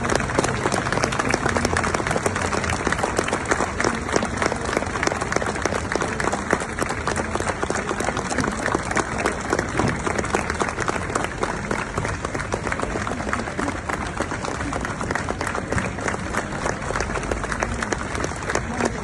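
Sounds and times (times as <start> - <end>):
crowd applauding: 0.0 - 19.0.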